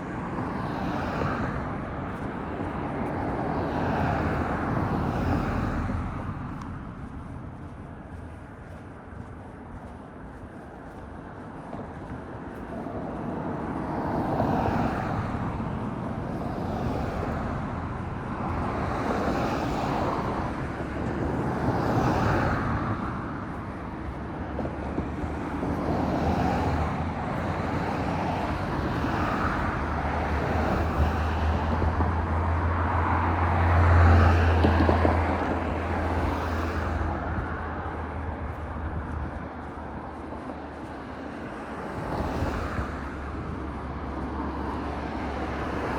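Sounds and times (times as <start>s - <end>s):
cars passing: 0.0s - 45.9s
low engine hum: 1.4s - 13.4s.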